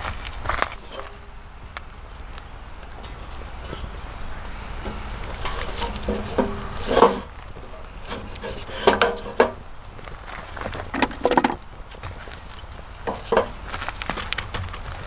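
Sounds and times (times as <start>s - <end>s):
objects scraping and rubbing: 4.8s - 13.6s
knocks of objects: 10.7s - 11.7s.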